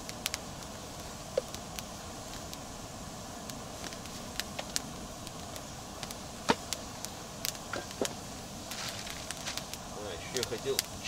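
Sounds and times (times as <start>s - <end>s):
campfire crackling: 0.0s - 11.0s
low background noise: 0.0s - 11.0s.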